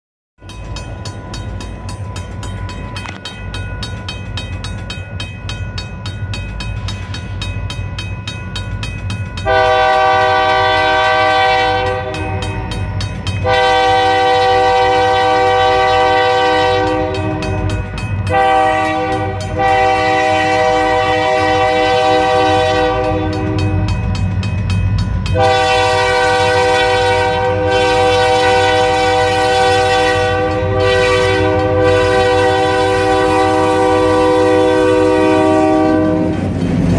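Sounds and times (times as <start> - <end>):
diesel locomotives rumbling: 0.4 - 36.9
locomotive air horn blasts: 9.4 - 12.7, 13.4 - 24.0, 25.3 - 36.4.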